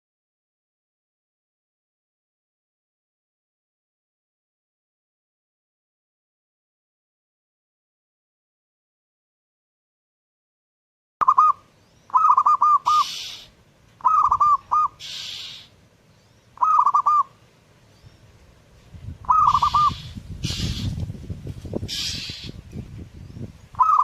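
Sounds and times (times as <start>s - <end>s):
dove cooing: 11.2s - 15.7s, 16.6s - 17.4s, 19.2s - 21.0s, 23.8s - 24.0s
soft hissing bursts: 12.9s - 13.8s, 15.0s - 16.4s, 17.4s - 22.9s.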